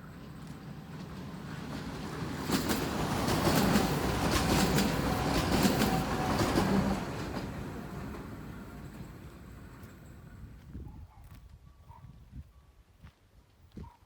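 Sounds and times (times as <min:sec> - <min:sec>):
electric train passing: 0:00.0 - 0:10.6.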